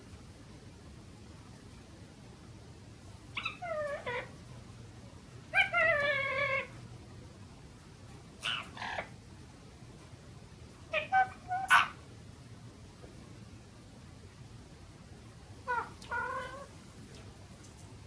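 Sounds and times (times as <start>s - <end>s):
meow-like animal calls: 5.6s - 6.7s, 10.9s - 12.0s, 15.7s - 16.7s.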